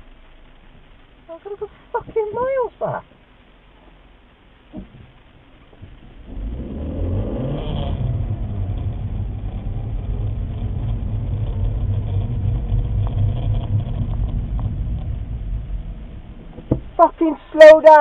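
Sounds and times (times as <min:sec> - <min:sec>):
car engine running low: 0:00.0 - 0:18.0.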